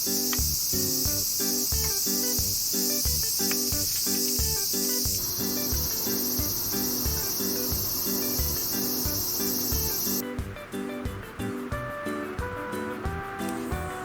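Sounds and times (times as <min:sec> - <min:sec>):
high-pitched hiss: 0:00.0 - 0:10.2
music with steady beat and chimes: 0:00.0 - 0:14.0.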